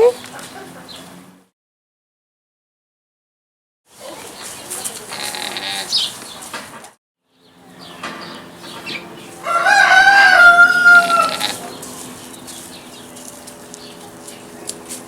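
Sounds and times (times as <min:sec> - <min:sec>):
farm animal call: 0:04.0 - 0:06.5, 0:07.6 - 0:14.8.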